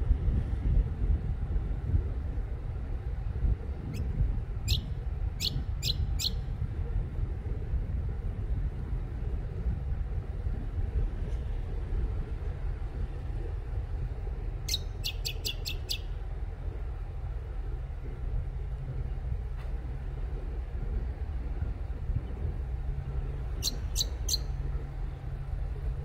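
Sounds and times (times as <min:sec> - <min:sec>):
steady low rumble: 0:00.0 - 0:26.0
small bird chirping: 0:04.7 - 0:06.4, 0:14.7 - 0:16.1, 0:23.6 - 0:24.5.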